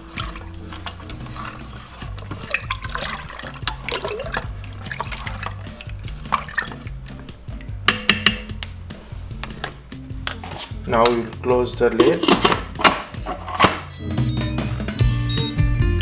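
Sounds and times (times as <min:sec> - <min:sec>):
soup swishing and sloshing: 0:00.0 - 0:13.8
spoon clicking against pot: 0:07.6 - 0:08.7.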